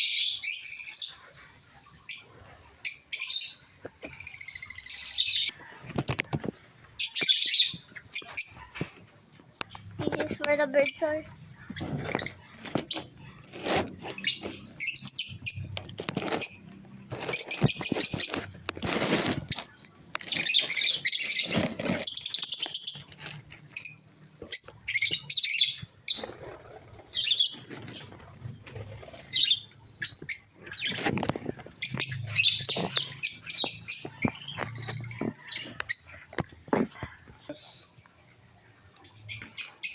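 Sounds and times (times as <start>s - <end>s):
rustling: 5.5s - 24.6s, 26.1s - 37.4s
parakeets chirping: 9.6s - 37.9s.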